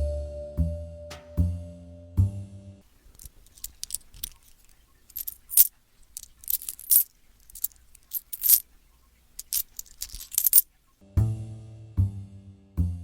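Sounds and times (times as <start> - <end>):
coins clinking and jingling: 3.0 - 8.7, 9.3 - 10.7.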